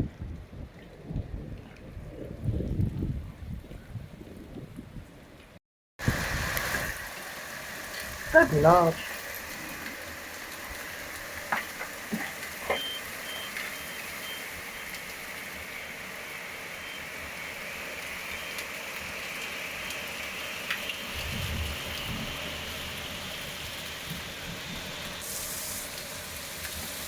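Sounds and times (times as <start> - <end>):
heavy rain falling: 6.0 - 27.0
faint high beeps: 12.6 - 14.9.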